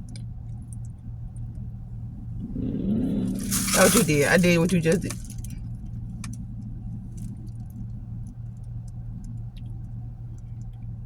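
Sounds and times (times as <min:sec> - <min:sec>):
faint small clicks: 0:00.0 - 0:01.6, 0:07.1 - 0:10.9
car engine idling: 0:00.0 - 0:11.0.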